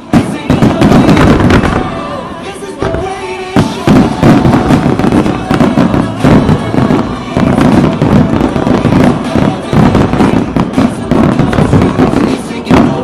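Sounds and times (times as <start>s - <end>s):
background music: 0.0s - 13.0s
fireworks bangs and crackle: 0.0s - 13.0s.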